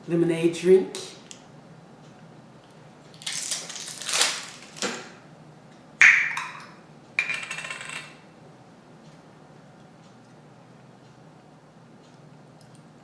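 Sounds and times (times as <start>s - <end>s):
tableware scraping and rattling: 7.2s - 8.2s.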